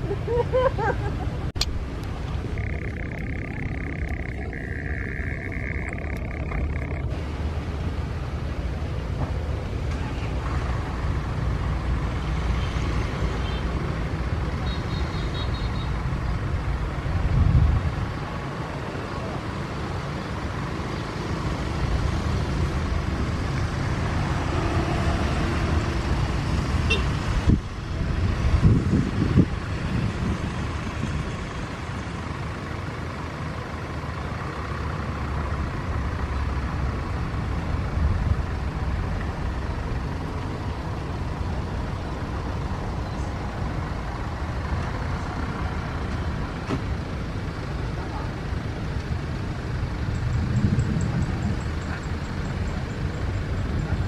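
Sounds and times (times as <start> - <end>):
low engine rumble: 0.0 - 12.7.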